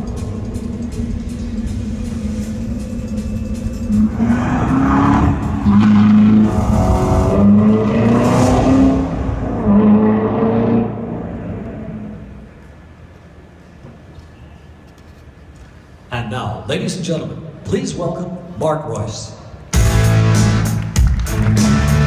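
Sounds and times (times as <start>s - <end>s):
car engine revving over loudspeakers: 3.9s - 12.5s.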